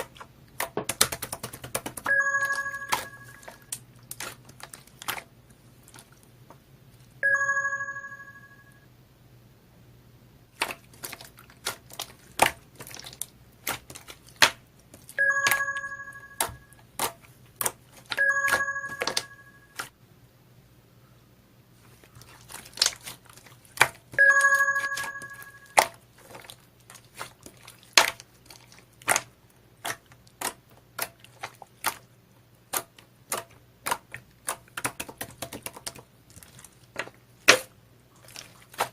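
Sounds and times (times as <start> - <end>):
slime squishing with clicking pops: 0.0 - 6.6, 10.6 - 19.9, 22.2 - 32.1, 32.7 - 38.9
bell dinging: 2.1 - 3.6, 7.2 - 8.8, 15.2 - 16.7, 18.2 - 19.7, 24.2 - 25.7.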